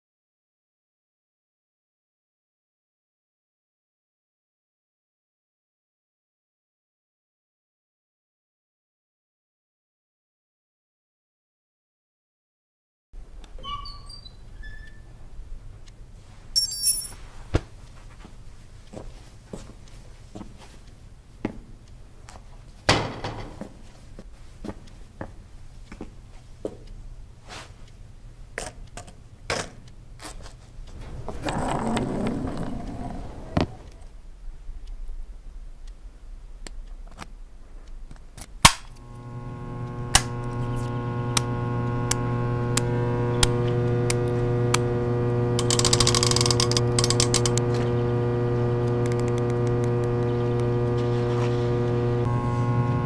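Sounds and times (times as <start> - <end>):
amplifier electrical hum: 38.7 - 53.0.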